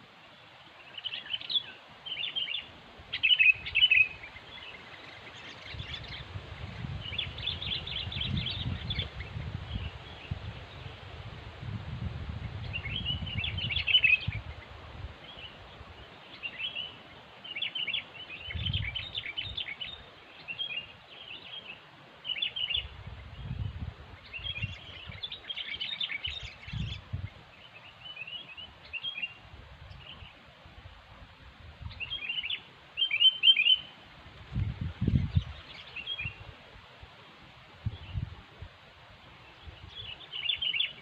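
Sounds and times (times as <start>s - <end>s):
bulbuls chirping: 0.4s - 10.9s, 31.9s - 36.5s.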